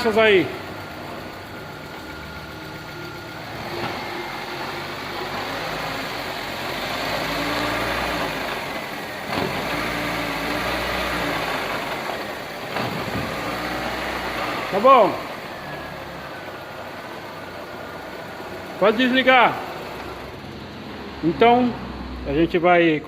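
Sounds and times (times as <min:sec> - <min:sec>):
car engine drone: 0:00.0 - 0:23.0
gear clunk: 0:12.6 - 0:13.5.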